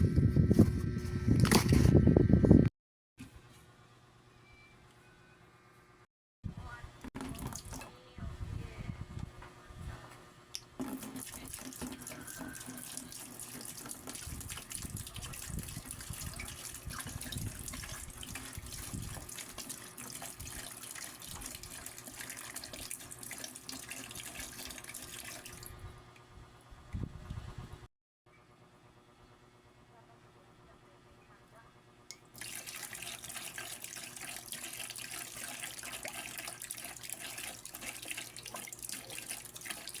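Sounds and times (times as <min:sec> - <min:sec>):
water running from a tap: 0:10.8 - 0:25.7, 0:32.4 - 0:40.0.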